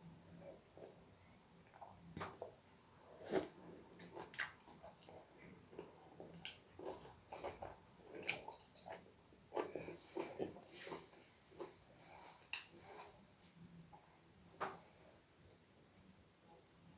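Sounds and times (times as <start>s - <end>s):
wet mouth eating sounds: 3.1s - 11.8s.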